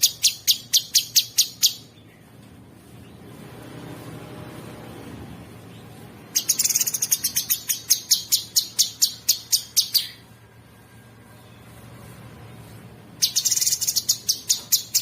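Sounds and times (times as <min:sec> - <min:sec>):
songbird sharp high chirps: 0:00.0 - 0:02.2, 0:06.4 - 0:10.3, 0:13.2 - 0:15.0.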